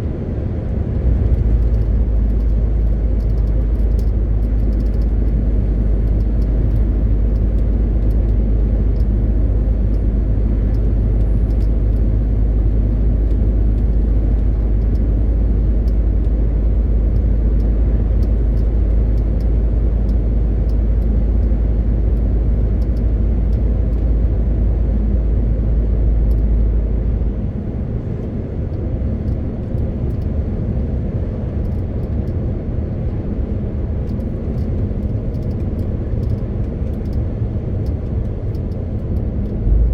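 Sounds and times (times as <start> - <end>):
truck engine droning: 0.0 - 30.0
road noise: 0.0 - 39.9.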